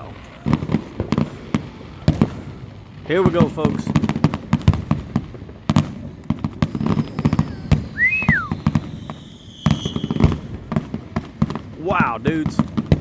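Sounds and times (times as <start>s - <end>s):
fireworks bangs and crackles: 0.0s - 13.0s
falling firework whistle: 5.7s - 13.0s.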